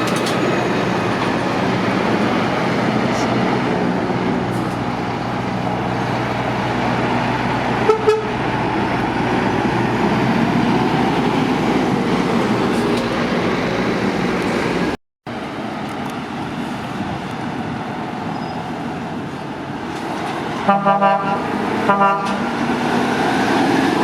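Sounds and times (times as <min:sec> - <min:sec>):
heavy vehicle engine noise: 0:00.0 - 0:24.0
motorway traffic: 0:00.0 - 0:24.0
vehicle horn toots: 0:07.8 - 0:08.3, 0:20.6 - 0:22.5.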